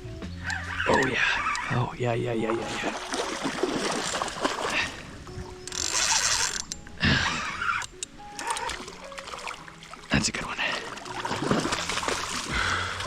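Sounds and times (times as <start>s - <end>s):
fishing reel clicking: 5.6s - 8.8s.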